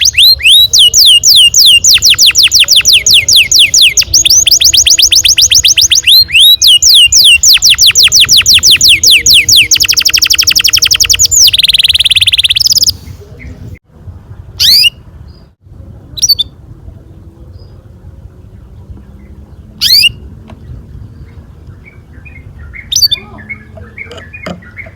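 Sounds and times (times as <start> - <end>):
canary trilling: 0.0 - 13.0, 14.6 - 15.0, 16.2 - 16.5, 19.8 - 20.2, 21.3 - 24.9.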